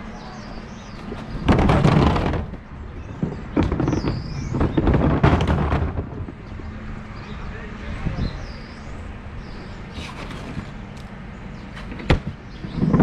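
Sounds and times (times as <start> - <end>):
bin lift tipping bin: 0.8 - 6.5.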